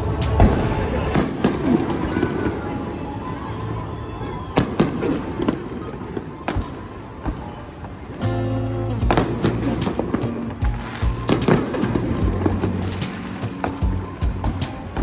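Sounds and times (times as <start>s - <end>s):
music: 0.0s - 5.4s, 8.2s - 15.0s.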